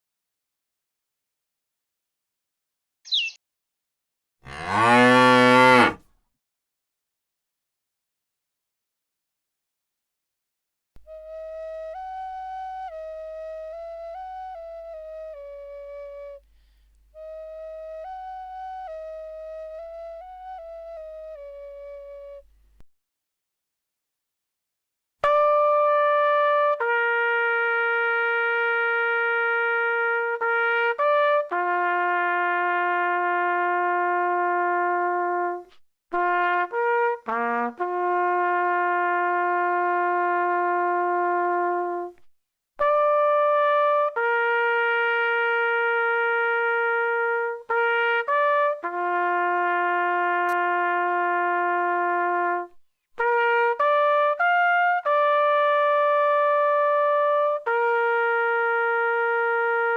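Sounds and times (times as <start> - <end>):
trumpet playing slow melody: 4.5 - 6.0, 11.0 - 22.5, 25.2 - 42.2, 42.8 - 59.9.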